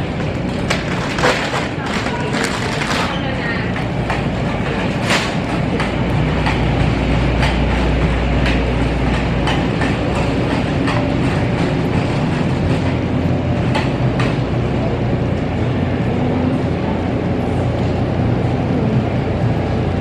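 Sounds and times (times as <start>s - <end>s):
wheel clacking: 0.0s - 16.4s
wheels rolling on hard floor: 0.1s - 14.4s.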